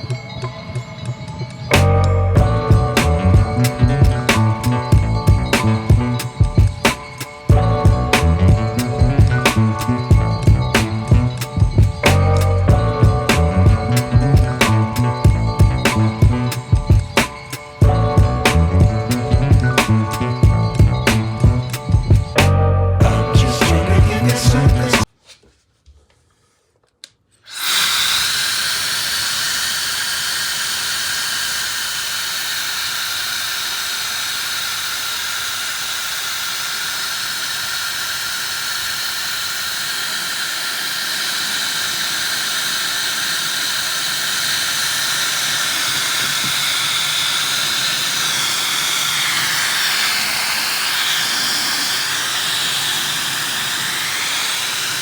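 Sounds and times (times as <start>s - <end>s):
hair dryer air rushing: 27.5s - 55.0s
hair dryer high whine: 27.5s - 55.0s.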